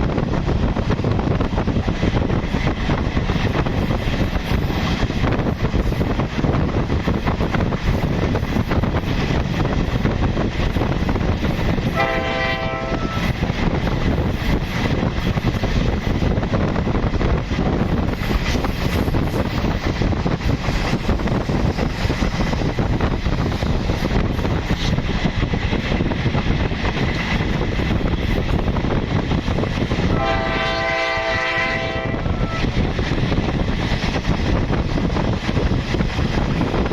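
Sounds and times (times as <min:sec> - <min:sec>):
passenger train running past: 0:00.0 - 0:36.9
train horn blasts: 0:12.0 - 0:13.3, 0:30.1 - 0:32.7.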